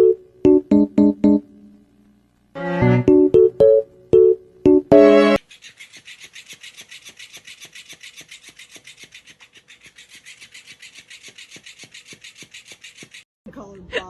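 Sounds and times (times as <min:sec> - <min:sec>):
rasping strokes on rough surface: 0:05.4 - 0:13.2.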